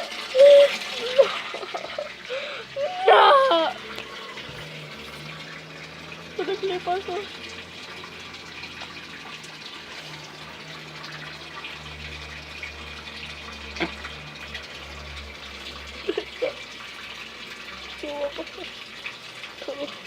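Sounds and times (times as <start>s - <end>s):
water running from a tap: 0.0s - 20.0s.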